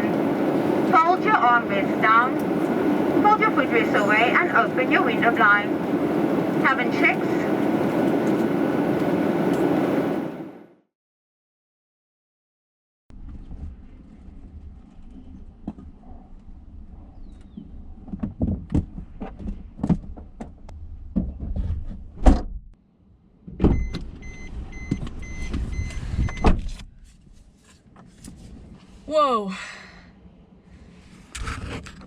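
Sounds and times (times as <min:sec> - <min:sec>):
airliner cabin rumble: 0:00.0 - 0:10.8, 0:23.4 - 0:29.1.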